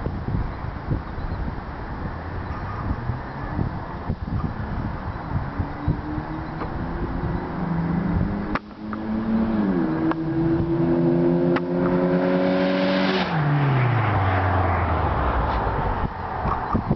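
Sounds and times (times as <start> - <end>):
car engine under load: 0.0 - 16.9.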